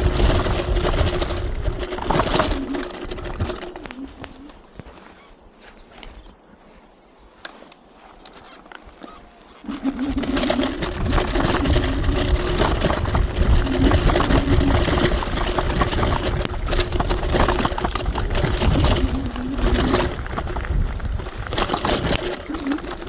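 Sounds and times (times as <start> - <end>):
constant rattling: 0.0 - 6.1, 8.2 - 23.0.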